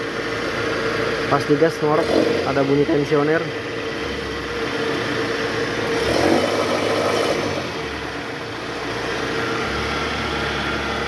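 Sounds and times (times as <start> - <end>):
car engine running: 0.0 - 11.0
drive belt tensioner growling: 1.5 - 4.3.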